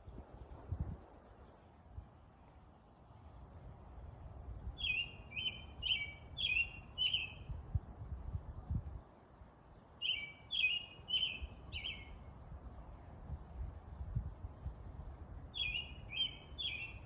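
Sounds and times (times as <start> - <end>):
faint high bird chirps: 4.3 - 7.6, 10.0 - 12.5, 15.5 - 17.0.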